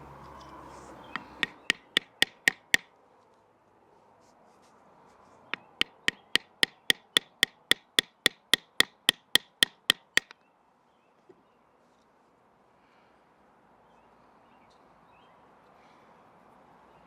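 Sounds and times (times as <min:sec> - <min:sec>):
baton striking wood: 0:01.1 - 0:02.9, 0:05.6 - 0:10.3.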